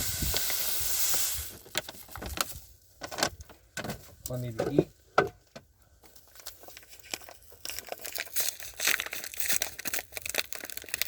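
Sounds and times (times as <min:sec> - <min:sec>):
sugar pouring gritty rustle: 0:00.0 - 0:01.8, 0:06.4 - 0:11.0
bag crinkling: 0:06.2 - 0:11.0.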